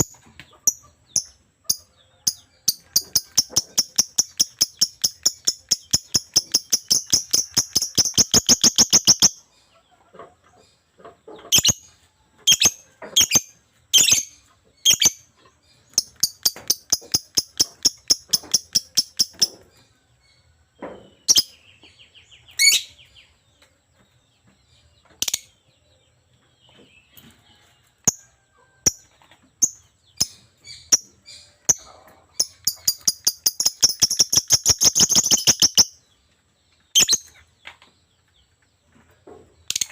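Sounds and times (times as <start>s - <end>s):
lovebird chirping: 0.0s - 9.5s, 11.4s - 19.8s, 21.2s - 23.2s, 29.6s - 36.2s, 36.8s - 37.5s.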